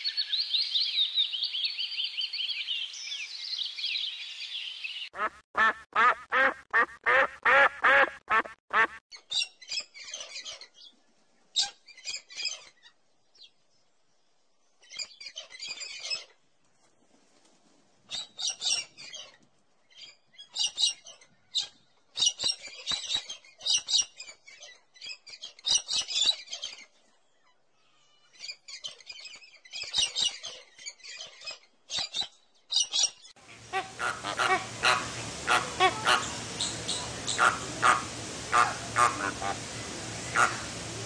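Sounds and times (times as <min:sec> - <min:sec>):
birds chattering calls: 0:32.7 - 0:41.0
steady hiss: 0:33.4 - 0:41.0.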